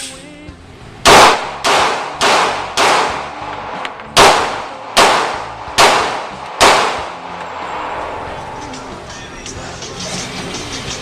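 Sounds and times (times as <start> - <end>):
echoing gunshots: 1.0 - 8.0.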